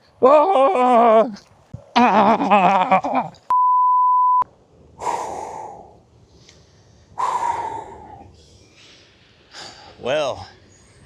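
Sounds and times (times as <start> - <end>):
man crying out: 0.2 - 1.4
censor bleep: 3.5 - 4.5
loud breathy gasp: 7.2 - 10.0.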